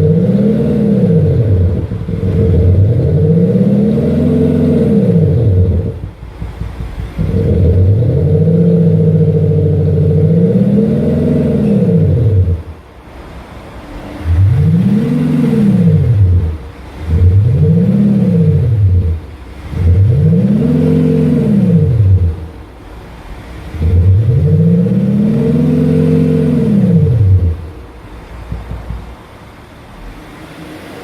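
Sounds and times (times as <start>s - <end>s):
synthetic exhaust note revving: 0.0s - 6.2s, 7.1s - 12.9s, 14.1s - 22.6s, 23.6s - 27.7s
engine idling: 0.0s - 31.0s.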